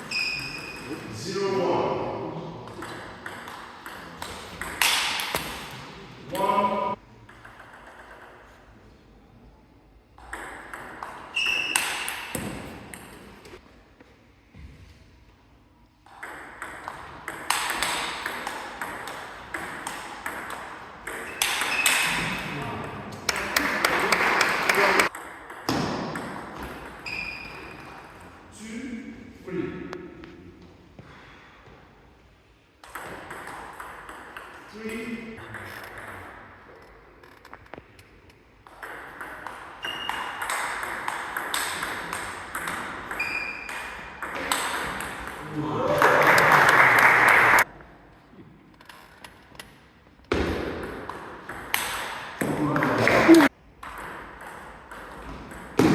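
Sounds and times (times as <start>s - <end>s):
brief high squeak: 0.0s - 0.9s, 11.4s - 12.0s, 27.0s - 27.8s, 43.2s - 43.7s.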